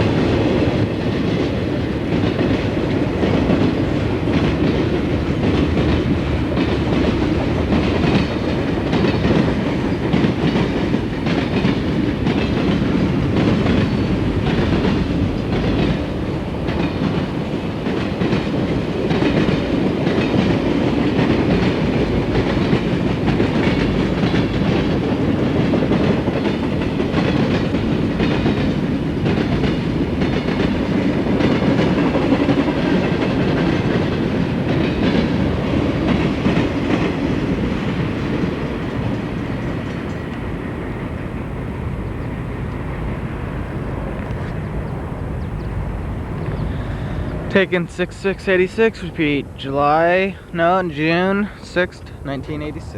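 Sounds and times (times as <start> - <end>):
wheels clicking over rail joints: 0.0 - 40.8
freight train rolling past: 0.0 - 52.9.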